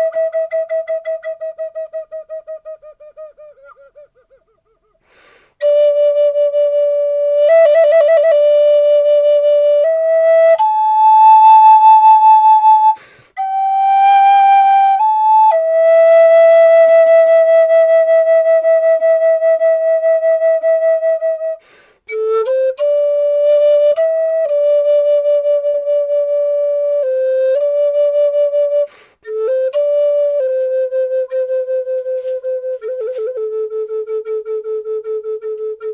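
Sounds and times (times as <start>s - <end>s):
solo flute melody: 0.0s - 35.9s.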